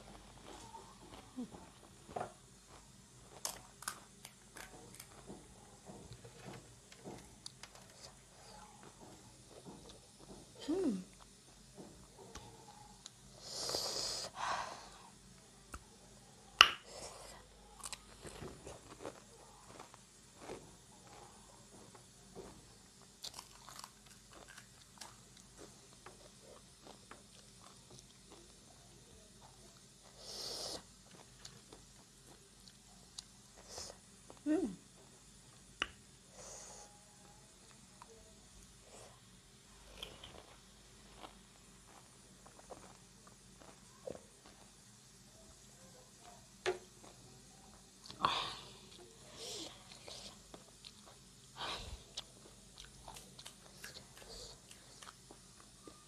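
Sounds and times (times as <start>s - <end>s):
crunching and chewing: 0.0s - 10.5s, 16.7s - 34.4s, 37.7s - 44.9s, 48.8s - 56.0s
crisp food crunching: 2.7s - 5.3s, 17.7s - 21.2s, 23.0s - 28.6s, 52.1s - 55.8s.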